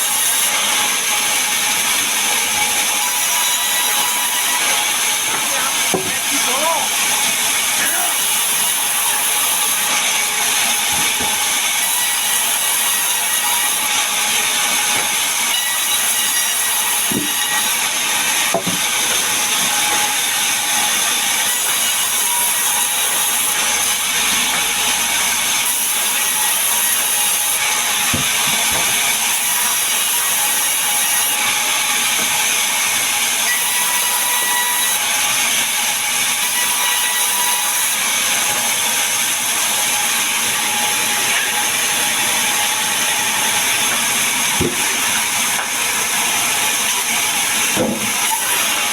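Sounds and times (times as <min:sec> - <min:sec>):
power saw cutting timber: 0:00.0 - 0:48.9.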